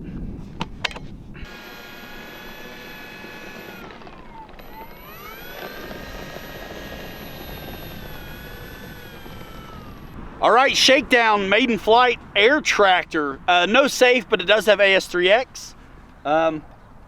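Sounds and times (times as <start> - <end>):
model plane motor whining: 1.4 - 10.2.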